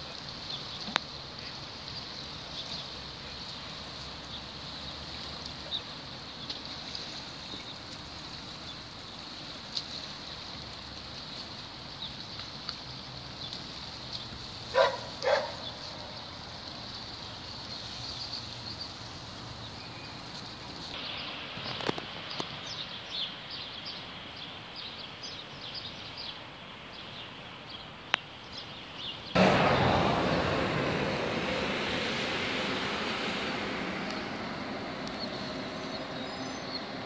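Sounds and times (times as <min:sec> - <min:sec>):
outdoor background noise: 0:00.0 - 0:37.0
loud steady rushing noise: 0:29.4 - 0:37.0
small birds chirping: 0:34.1 - 0:37.0.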